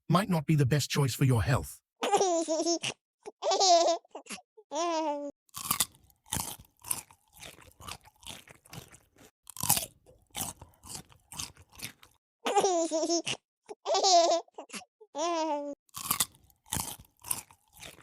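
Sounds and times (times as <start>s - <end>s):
crunchy chewing of food: 5.5s - 12.2s, 15.9s - 18.0s.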